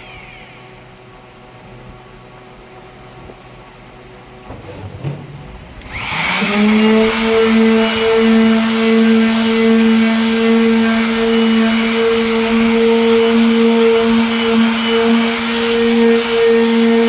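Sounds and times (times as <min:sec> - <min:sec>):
faint handling knocks: 0:04.3 - 0:05.9
electric sander running: 0:05.6 - 0:17.0.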